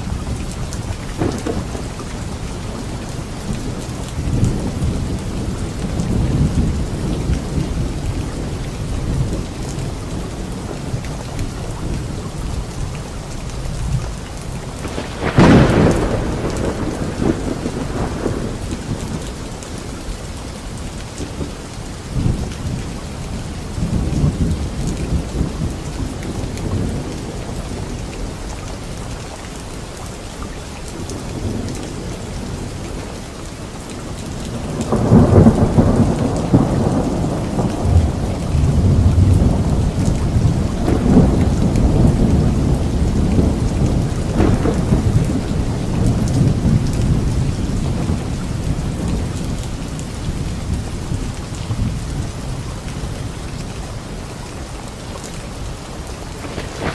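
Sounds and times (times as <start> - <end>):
loud thunderclap: 0.0 - 2.9, 14.8 - 19.4, 34.5 - 50.0, 56.2 - 56.9
thunder rumbling: 0.0 - 28.9, 31.0 - 53.7, 55.6 - 56.9
steady rainfall: 0.0 - 56.9.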